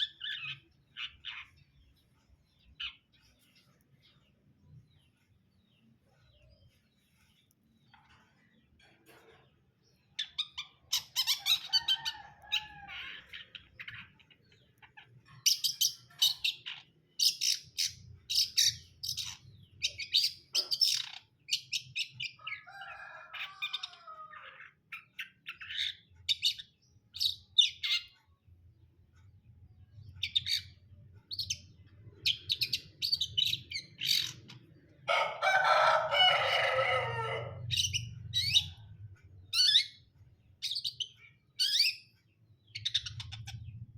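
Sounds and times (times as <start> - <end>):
bird sharp high chirps: 40.7 - 43.8.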